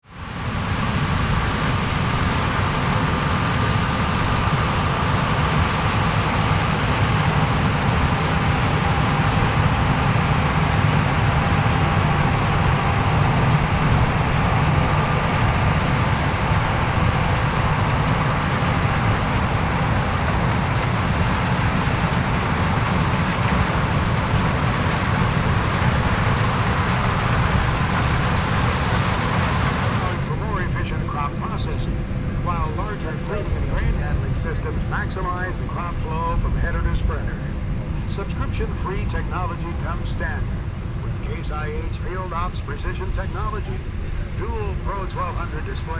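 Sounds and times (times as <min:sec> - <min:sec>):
combine harvester drone: 0:00.0 - 0:45.9
faint steady whine: 0:00.1 - 0:45.9.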